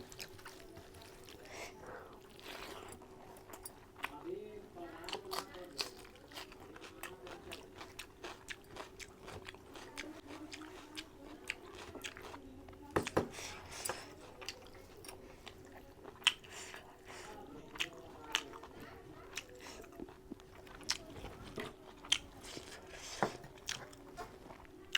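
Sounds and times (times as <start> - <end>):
wet chewing and mouth clicks: 14.4 - 16.8, 17.7 - 22.8.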